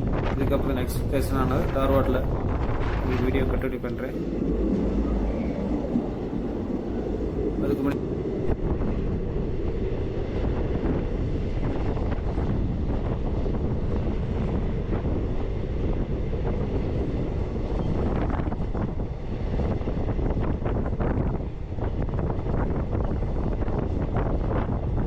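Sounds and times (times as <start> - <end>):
train clatters: 0.0 - 8.0
train rumbling: 0.0 - 15.9
wind buffeting microphone: 0.0 - 25.0.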